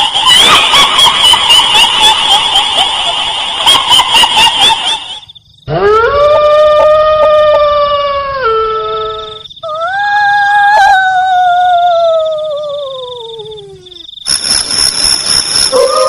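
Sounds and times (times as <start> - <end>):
crackling noise with high tone: 0.0 - 5.7, 8.0 - 16.0
long howl: 5.7 - 13.9, 15.7 - 16.0.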